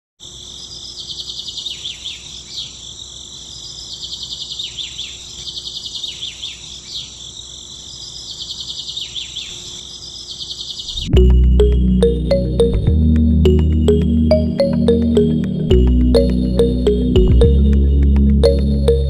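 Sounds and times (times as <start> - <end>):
insects droning: 0.2 - 11.1
songbird trill and sliding notes: 11.1 - 19.0.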